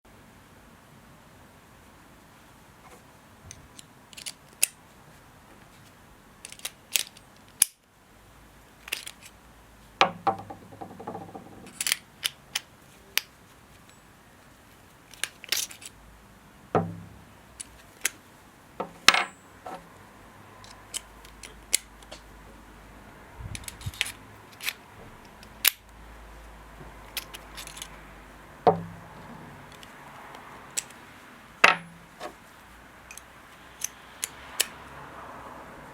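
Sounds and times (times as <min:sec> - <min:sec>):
metal parts clicking and clinking: 0:03.7 - 0:04.8, 0:06.4 - 0:07.8, 0:08.8 - 0:09.4, 0:10.0 - 0:14.0, 0:15.1 - 0:16.0, 0:18.8 - 0:19.9, 0:20.6 - 0:22.2, 0:23.6 - 0:25.8, 0:27.1 - 0:28.0.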